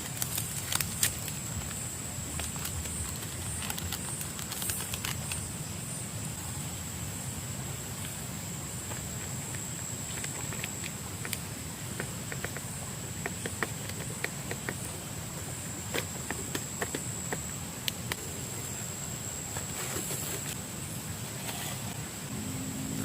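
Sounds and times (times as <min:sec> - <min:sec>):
sharp clicks and crackles: 0:00.0 - 0:05.4
high-pitched insect drone: 0:21.9 - 0:23.0.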